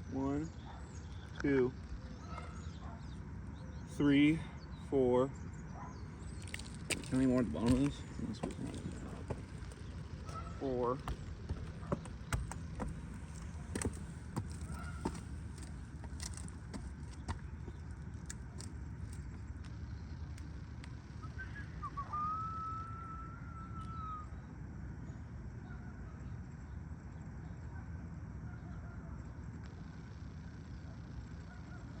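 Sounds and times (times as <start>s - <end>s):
thin whistle-like tone: 21.2s - 24.4s.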